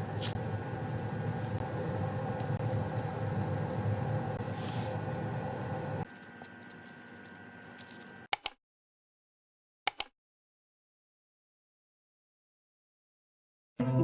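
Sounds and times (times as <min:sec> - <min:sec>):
sharp clicks: 0:08.4 - 0:08.6, 0:09.9 - 0:10.1.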